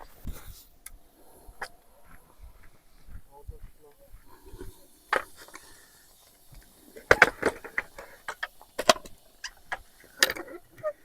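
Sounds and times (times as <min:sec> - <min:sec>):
sharp clicks and knocks from handling: 0:05.1 - 0:10.6.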